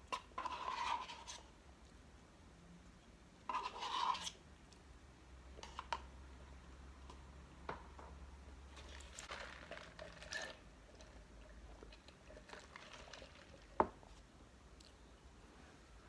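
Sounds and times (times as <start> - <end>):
soft rustling and squishing: 8.7 - 15.0.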